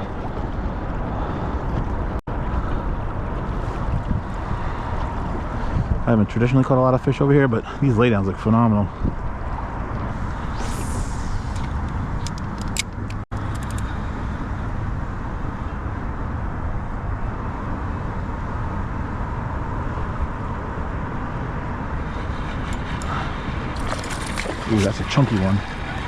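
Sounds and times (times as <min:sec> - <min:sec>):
low rumbling noise: 0:09.2 - 0:13.2.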